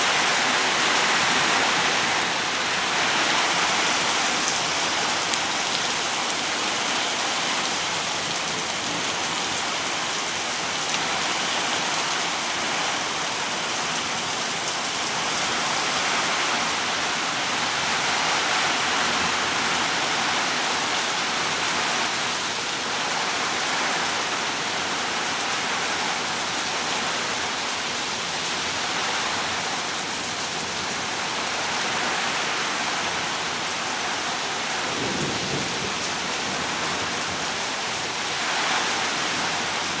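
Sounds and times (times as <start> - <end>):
heavy rain pouring: 0.0 - 40.0.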